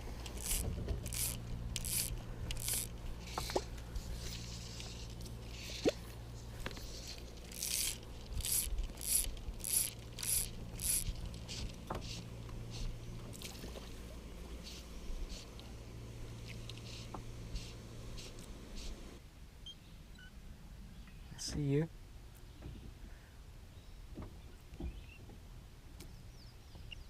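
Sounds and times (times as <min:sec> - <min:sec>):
fly line swishing: 0:00.0 - 0:06.2, 0:06.8 - 0:11.7
steady low hum: 0:00.0 - 0:19.2.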